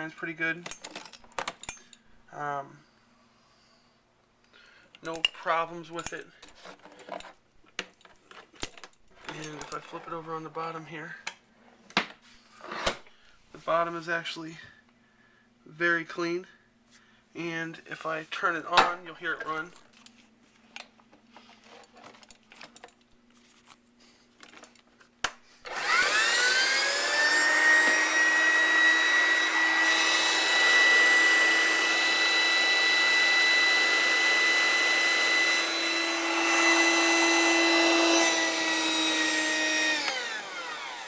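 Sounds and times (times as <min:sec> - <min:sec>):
electric motor whine: 0:25.7 - 0:41.0.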